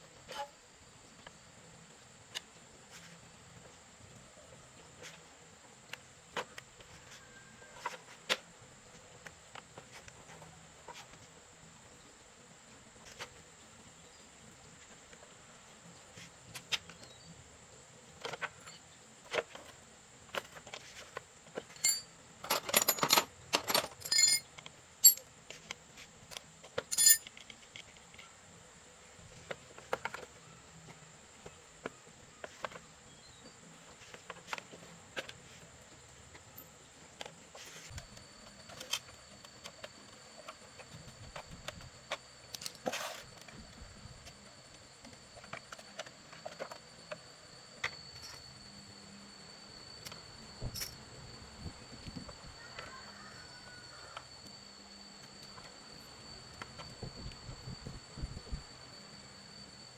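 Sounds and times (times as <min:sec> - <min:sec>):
metallic clinks and taps: 0:21.7 - 0:25.2, 0:26.9 - 0:27.4.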